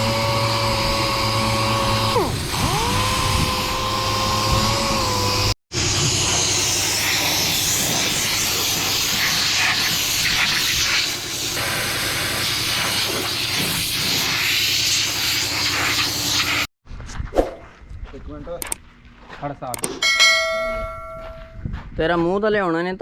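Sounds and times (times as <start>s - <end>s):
air tool hissing: 0.0s - 16.7s.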